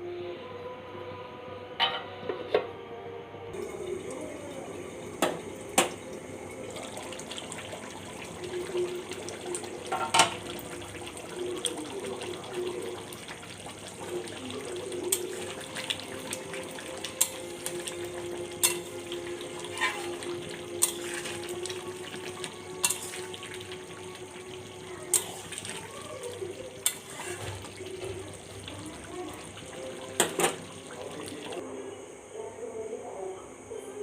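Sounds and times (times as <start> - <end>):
food sizzling in a pan: 3.6 - 31.6.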